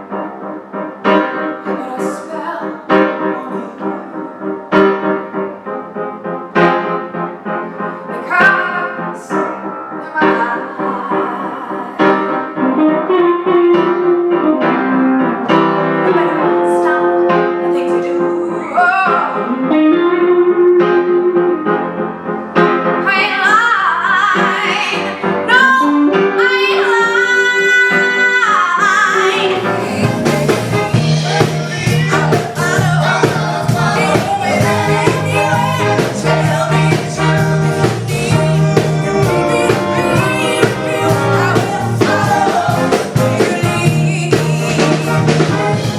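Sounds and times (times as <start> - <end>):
piano accompaniment: 0.0 - 45.9
woman singing: 1.6 - 4.3, 8.1 - 12.6, 16.0 - 19.5, 23.0 - 30.9, 31.8 - 45.7
band with bass and drums: 29.2 - 45.9.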